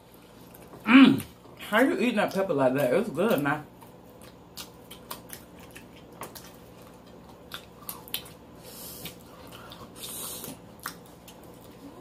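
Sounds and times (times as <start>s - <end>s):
wet chewing and smacking: 0.0s - 12.0s
hissy breaths: 8.6s - 10.6s.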